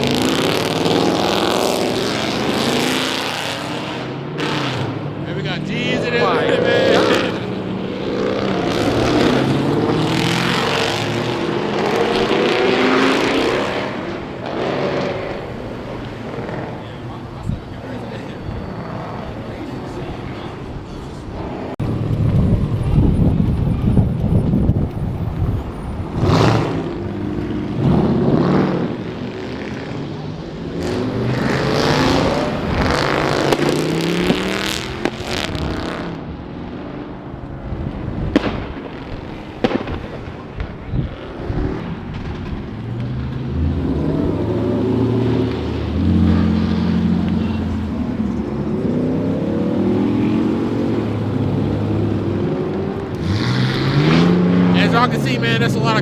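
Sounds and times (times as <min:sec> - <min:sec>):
car engines revving: 0:00.0 - 0:56.0
steady engine hum: 0:15.1 - 0:27.8.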